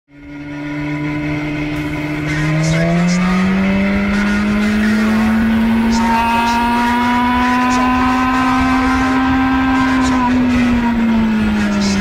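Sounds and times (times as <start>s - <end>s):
motorcycle engine accelerating: 0.1s - 12.0s
low wind rumble: 0.2s - 12.0s.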